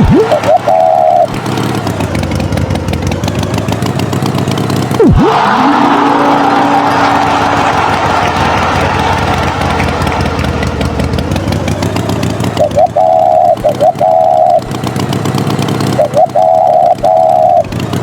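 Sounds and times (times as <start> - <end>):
pitched chirps and tones: 0.0 - 1.9, 12.5 - 14.7, 15.9 - 17.7
tractor engine knocking rumble: 0.0 - 5.0, 7.1 - 18.0.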